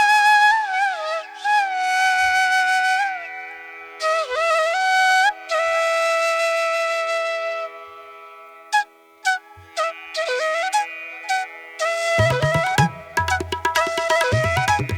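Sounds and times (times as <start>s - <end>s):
flute playing long notes: 8.8s - 14.9s.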